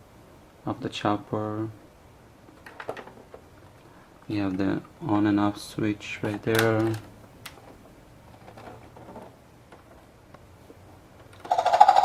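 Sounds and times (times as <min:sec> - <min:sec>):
plastic toy clicks and taps: 0:11.4 - 0:12.0
electronic helicopter rotor sound: 0:11.5 - 0:12.0.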